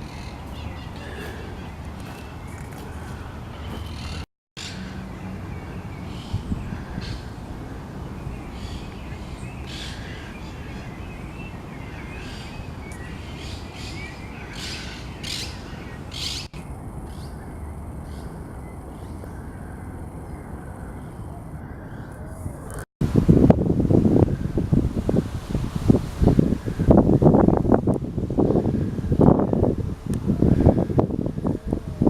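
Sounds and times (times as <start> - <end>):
birds chirping: 0.0 - 22.8.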